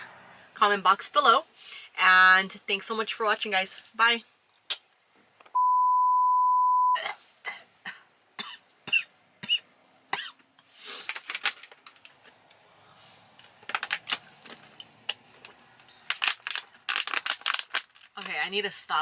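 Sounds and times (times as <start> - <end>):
steady beep tone: 5.6 - 7.0.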